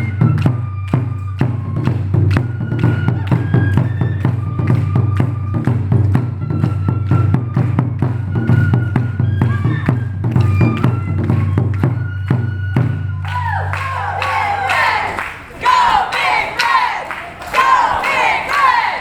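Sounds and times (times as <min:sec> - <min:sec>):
taiko drumming: 0:00.0 - 0:14.9.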